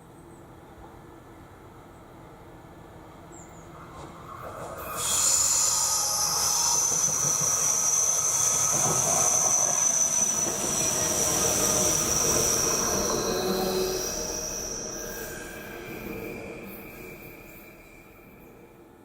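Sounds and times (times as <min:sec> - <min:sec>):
rumble of train cars: 0:00.0 - 0:19.0
train wheels squealing: 0:03.3 - 0:19.0.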